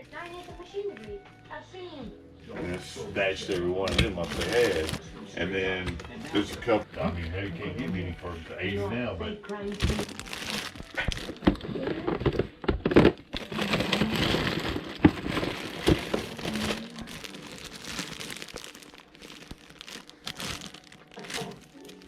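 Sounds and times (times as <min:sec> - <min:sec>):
plastic packaging crinkling: 0:00.0 - 0:01.2, 0:02.7 - 0:05.1, 0:09.5 - 0:22.0
plastic pieces clicking: 0:09.5 - 0:22.0.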